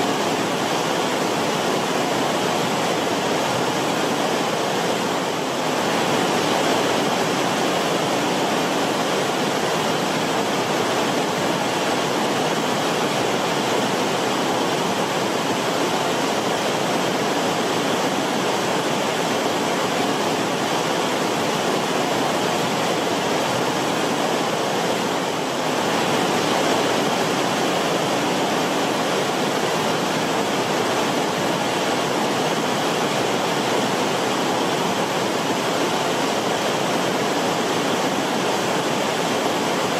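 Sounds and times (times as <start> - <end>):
creek water flowing over rocks: 0.0 - 39.9.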